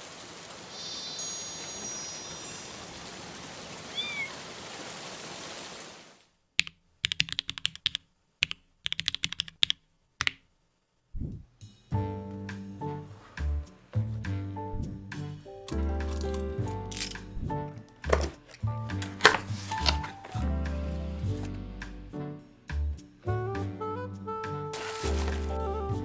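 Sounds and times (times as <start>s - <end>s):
mechanical keyboard typing: 6.6s - 10.4s.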